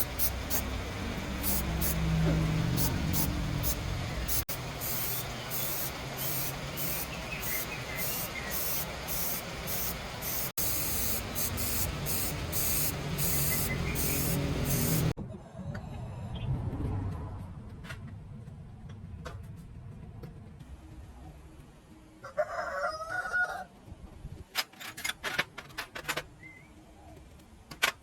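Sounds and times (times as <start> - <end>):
pressurised spray hissing: 0.0 - 15.2
low hum: 0.0 - 22.1.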